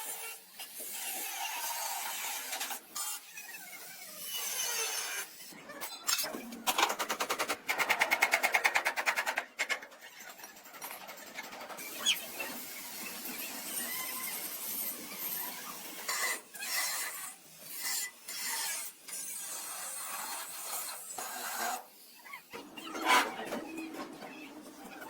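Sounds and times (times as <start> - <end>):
hand tool scraping metal: 22.8 - 24.0.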